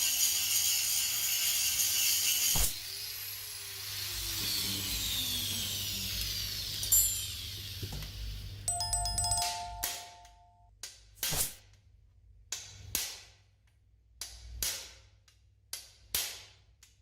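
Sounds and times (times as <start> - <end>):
electric power tool running: 1.2 - 8.5.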